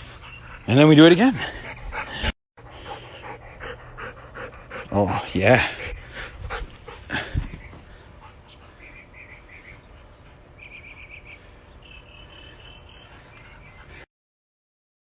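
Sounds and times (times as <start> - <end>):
dogs stirring: 5.8 - 8.4
small bird chirping: 7.3 - 14.0.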